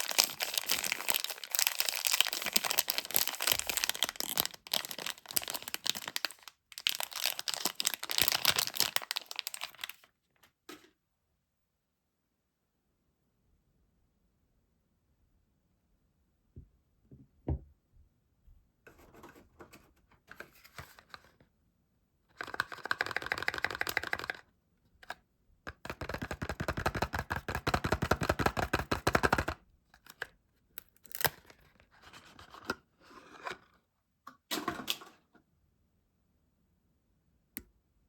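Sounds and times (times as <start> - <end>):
wrapper crackling and tearing: 0.0 - 10.1, 30.8 - 31.8.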